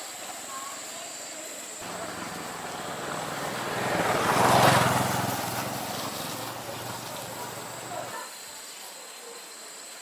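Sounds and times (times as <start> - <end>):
motorbike engine passing by: 1.8 - 8.2.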